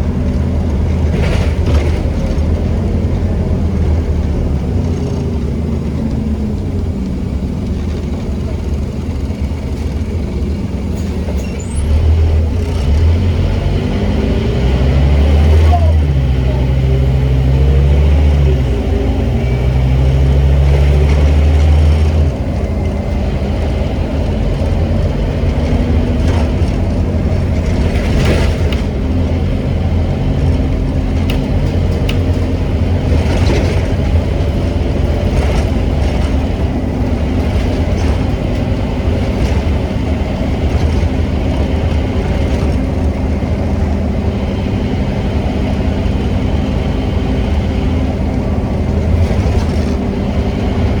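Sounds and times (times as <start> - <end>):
bus diesel engine pulling hard: 0.0 - 51.0
road noise: 0.0 - 51.0
knocks and rattles: 24.5 - 43.3.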